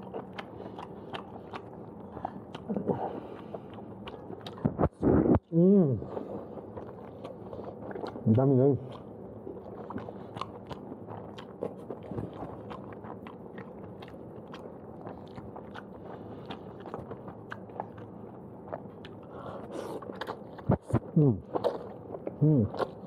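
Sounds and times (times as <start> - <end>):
close chewing of noodles: 0.0 - 23.0
mouth clicks and smacks: 6.2 - 23.0.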